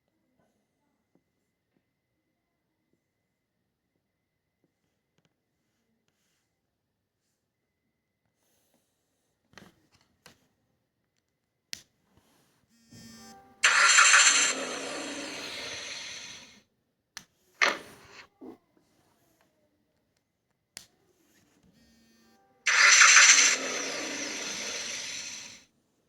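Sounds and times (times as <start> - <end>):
short clicks: 13.6 - 16.5, 17.6 - 18.2, 22.7 - 25.6.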